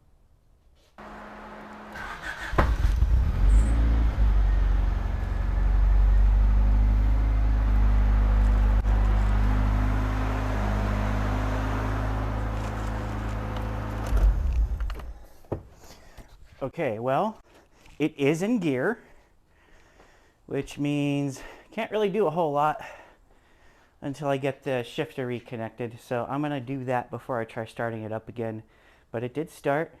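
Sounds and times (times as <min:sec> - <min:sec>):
car engine running: 0:01.0 - 0:15.2
starter cranking engine: 0:01.8 - 0:04.3.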